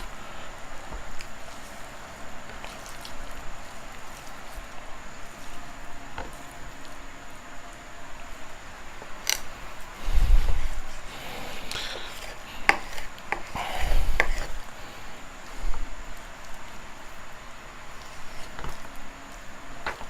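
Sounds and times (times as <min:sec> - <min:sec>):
knife cutting raw chicken: 0:11.6 - 0:14.6.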